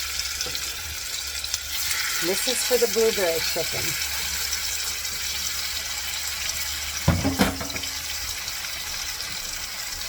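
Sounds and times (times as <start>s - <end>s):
chicken sizzling in a pan: 0.0s - 10.0s
utensil knocking on pan: 7.1s - 8.0s.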